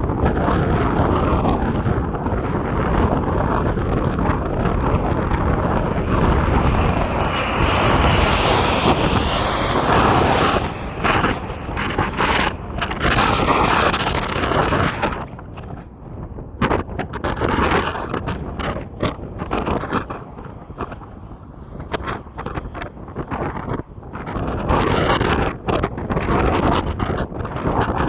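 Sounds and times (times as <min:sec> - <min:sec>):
wind buffeting microphone: 0:00.0 - 0:28.0
aircraft noise rushing: 0:01.1 - 0:15.2.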